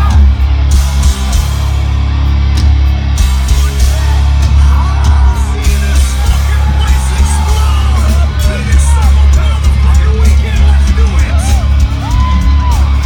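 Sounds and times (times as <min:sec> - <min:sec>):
vocals or crowd voices: 0:00.0 - 0:02.5, 0:03.1 - 0:13.0
distorted electric guitars: 0:00.0 - 0:13.0
drums: 0:00.0 - 0:13.0
heavy bass: 0:00.0 - 0:13.0.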